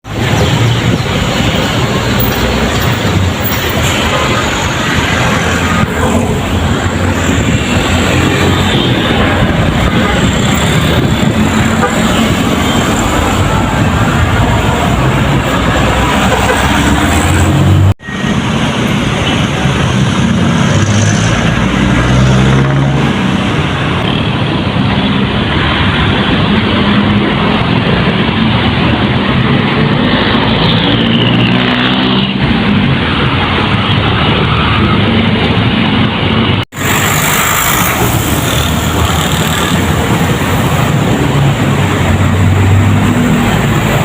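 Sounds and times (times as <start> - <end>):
busy road traffic: 0.0 - 44.0.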